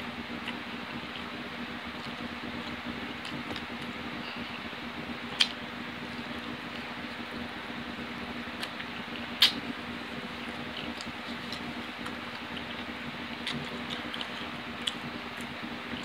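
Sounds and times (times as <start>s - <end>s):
person chewing food: 10.4s - 16.0s.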